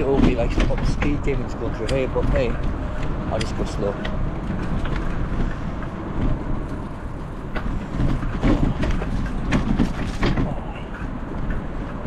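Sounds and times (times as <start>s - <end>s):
bicycle knocks and rattles: 0.0s - 10.7s
bicycle rolling over rough path: 3.8s - 10.6s.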